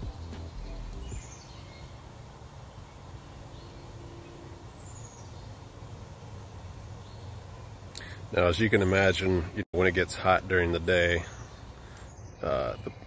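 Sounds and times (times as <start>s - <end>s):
low hum: 0.0s - 4.8s.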